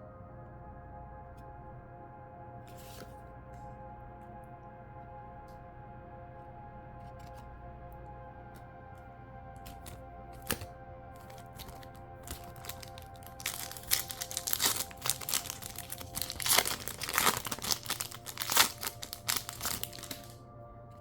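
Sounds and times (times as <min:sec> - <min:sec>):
soft background music: 0:00.0 - 0:21.0
foil wrapper crinkling and tearing: 0:09.6 - 0:20.4.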